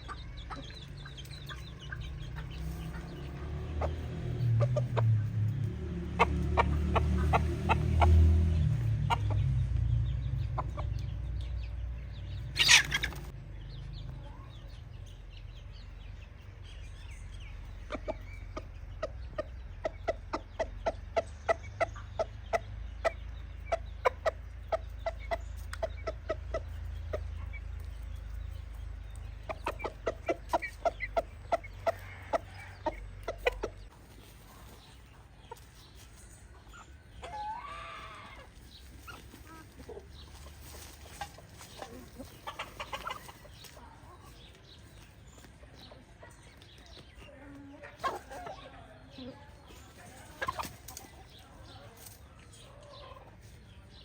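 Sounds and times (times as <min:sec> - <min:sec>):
chickens clucking: 0:00.0 - 0:54.0
low rumble: 0:00.7 - 0:20.0.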